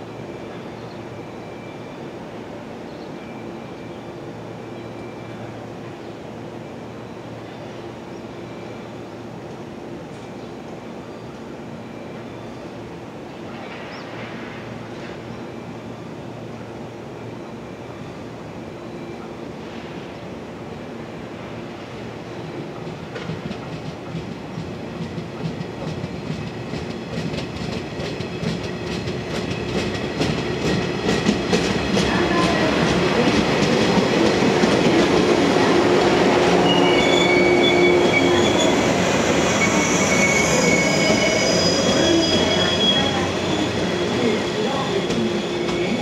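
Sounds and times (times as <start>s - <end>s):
high-pitched wheel squeal: 36.6s - 44.1s.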